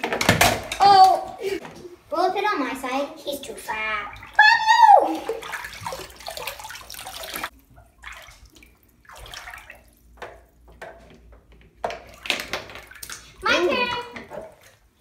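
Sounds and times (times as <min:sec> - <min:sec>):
bathtub water sloshing and splashing: 0:00.0 - 0:15.0.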